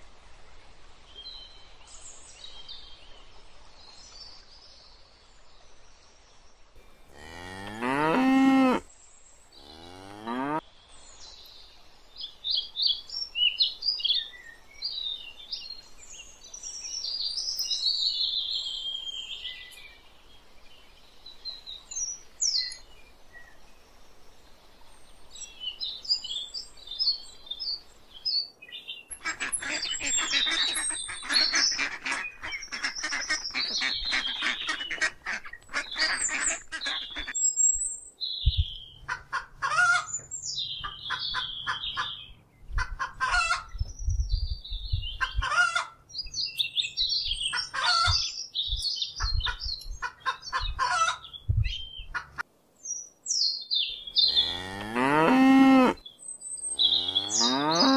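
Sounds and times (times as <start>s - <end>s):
birds chirping: 6.8s - 10.6s, 25.0s - 57.9s.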